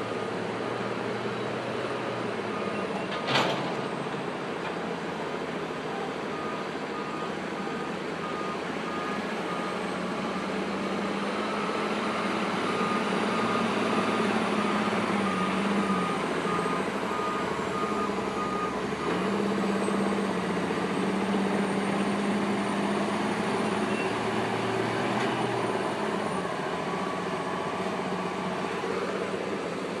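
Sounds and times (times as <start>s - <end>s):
excavator diesel engine working: 0.0s - 30.0s
reversing beeper: 5.9s - 10.6s, 11.3s - 20.0s.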